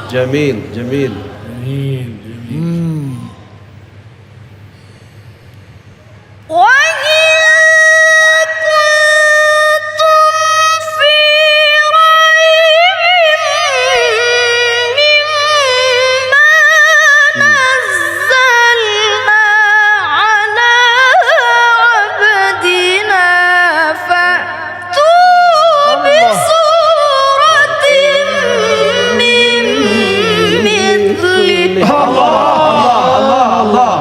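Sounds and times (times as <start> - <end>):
person chanting recitation: 0.0 - 3.4, 17.3 - 19.3, 25.8 - 34.0
breaths: 4.6 - 5.7.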